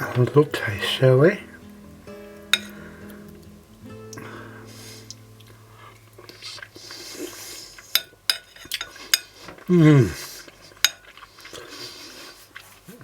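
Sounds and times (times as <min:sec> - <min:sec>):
cutlery clinking on plate: 0:08.0 - 0:09.3, 0:10.8 - 0:11.2.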